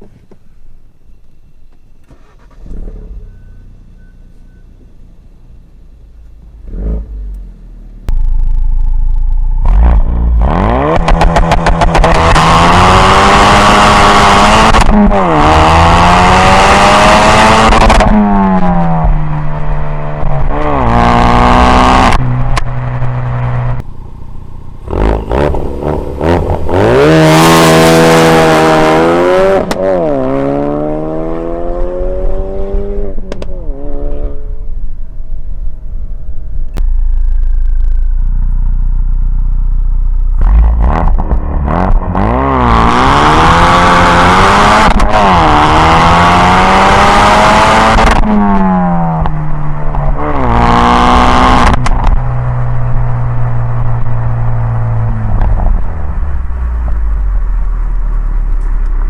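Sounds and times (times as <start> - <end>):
car engine accelerating hard: 6.6 - 34.7, 40.3 - 59.0.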